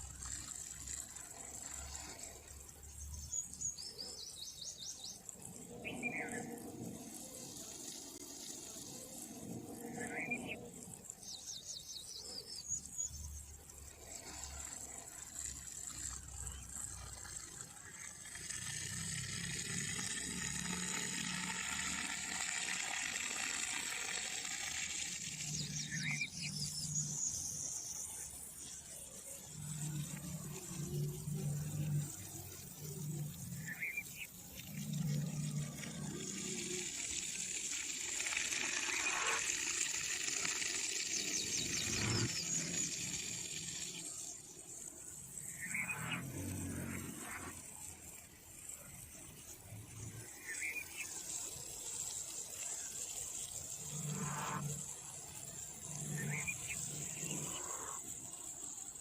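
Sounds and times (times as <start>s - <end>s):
bird chirps: 3.1s - 6.6s, 25.4s - 28.3s
running water splashing: 13.7s - 27.8s, 29.5s - 58.1s.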